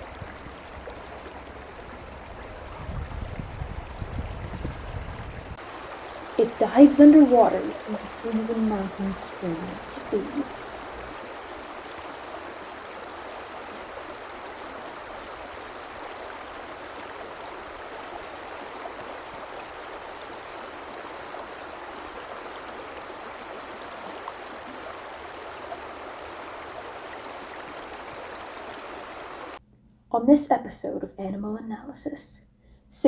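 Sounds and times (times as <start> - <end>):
stream rushing over rocks: 0.0 - 29.6.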